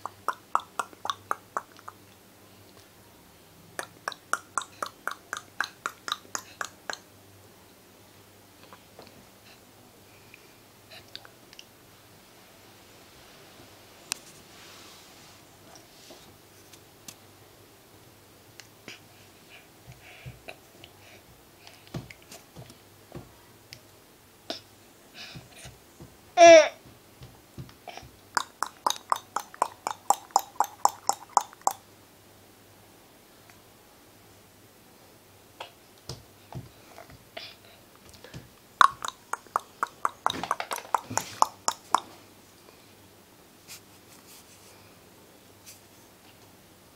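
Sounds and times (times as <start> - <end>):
baby walker knocking and clicking: 39.5 - 42.0.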